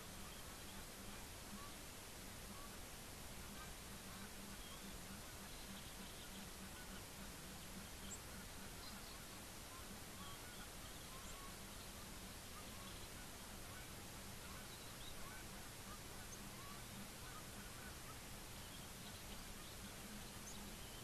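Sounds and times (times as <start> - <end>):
distant bird calls: 0.0 - 1.8, 3.4 - 21.0
faint low hum: 0.0 - 21.0
outdoor hiss: 0.0 - 21.0.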